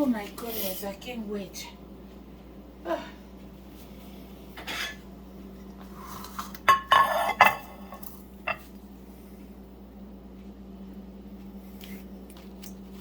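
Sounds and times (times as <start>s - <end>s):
dishes and utensils clinking: 4.6s - 5.0s, 6.3s - 8.7s.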